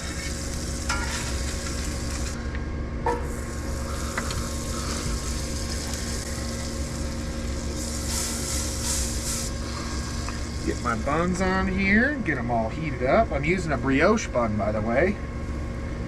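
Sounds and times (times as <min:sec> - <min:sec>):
burger patties sizzling in a pan: 0:00.0 - 0:02.4, 0:03.2 - 0:11.4
fan hum: 0:00.0 - 0:16.0.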